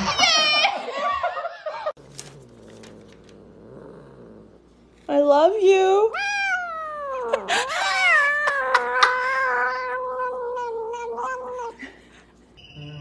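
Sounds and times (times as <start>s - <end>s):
cat yowling: 6.1s - 11.8s.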